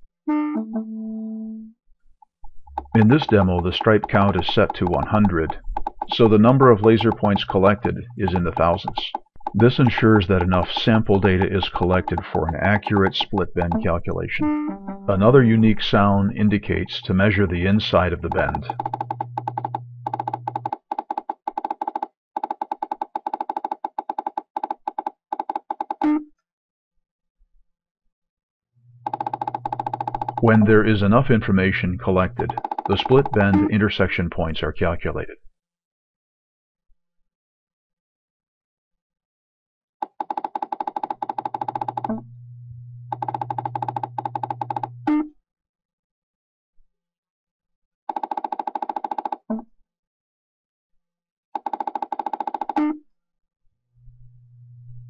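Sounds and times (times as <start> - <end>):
rapid short beeping ticks: 2.4 - 14.0
long electronic tone: 42.2 - 43.1.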